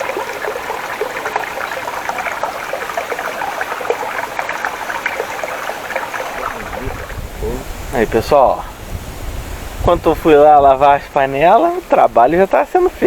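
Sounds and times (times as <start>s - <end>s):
stream babbling over stones: 0.0s - 8.8s.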